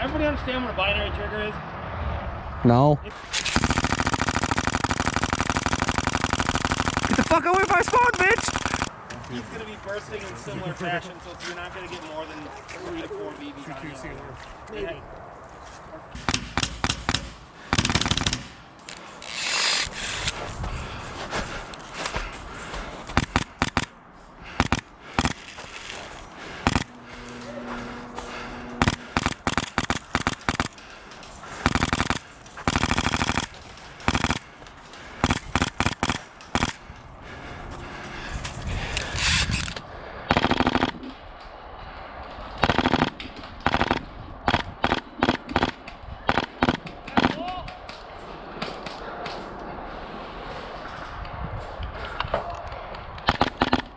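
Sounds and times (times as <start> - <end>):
airsoft guns firing: 3.1 - 9.0, 16.1 - 20.4, 22.2 - 36.9, 40.3 - 41.2, 42.6 - 47.8, 53.3 - 53.9.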